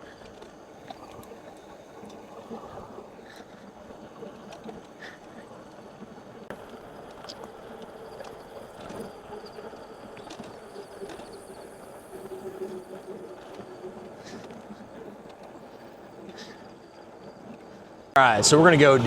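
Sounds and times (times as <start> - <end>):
electric bike motor whine: 6.3 - 19.0.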